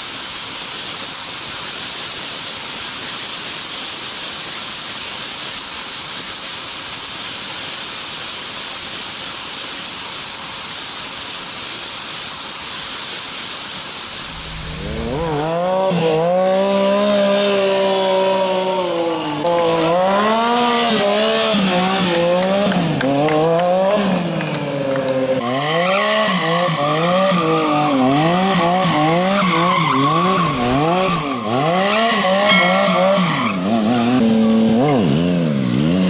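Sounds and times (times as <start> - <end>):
motorcycle engine accelerating: 14.2 - 17.2.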